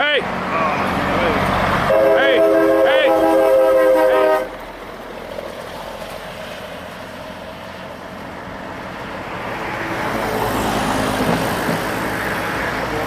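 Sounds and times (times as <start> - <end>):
passing road traffic: 0.0 - 13.0
vehicle approaching: 0.0 - 13.0
loud air horn blast: 1.9 - 4.6.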